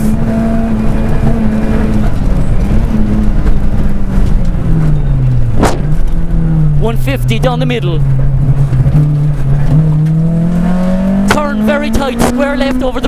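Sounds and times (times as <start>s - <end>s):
car engine revving: 0.0s - 13.0s
sharp crack: 5.6s - 6.2s, 11.2s - 11.5s.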